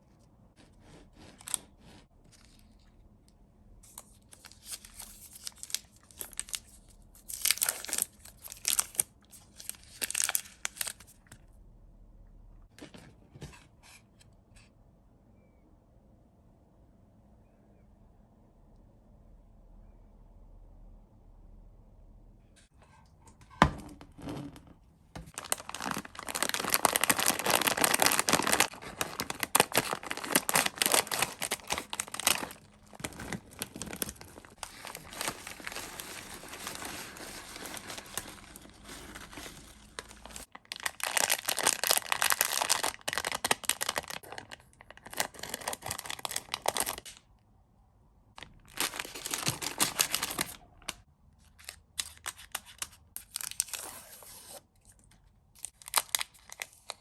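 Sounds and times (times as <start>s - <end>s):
plastic wrappers crinkling: 3.9s - 11.3s, 25.3s - 47.2s, 48.4s - 51.0s, 55.6s - 57.0s.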